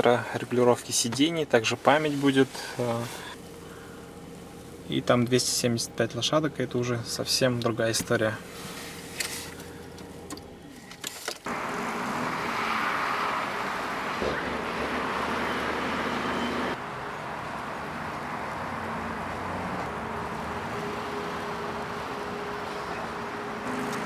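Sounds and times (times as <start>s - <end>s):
car engine running: 0.4s - 24.0s.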